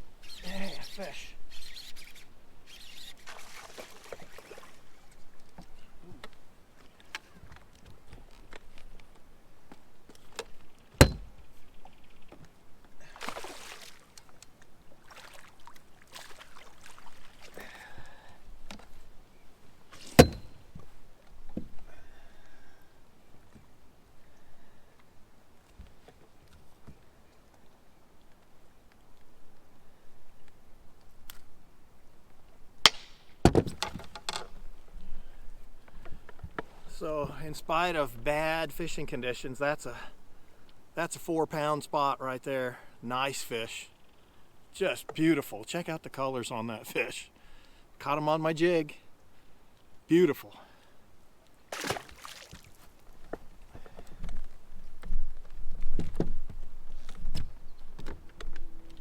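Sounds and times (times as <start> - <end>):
knocks and clicks on a boat: 10.3 - 11.5
rushes of water or wind: 13.0 - 18.4.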